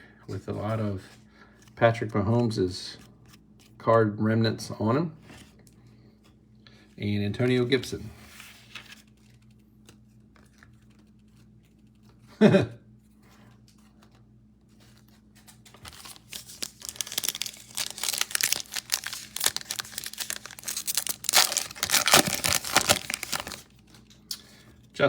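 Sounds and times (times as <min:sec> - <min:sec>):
foil pack crinkling and tearing: 0:15.5 - 0:24.2.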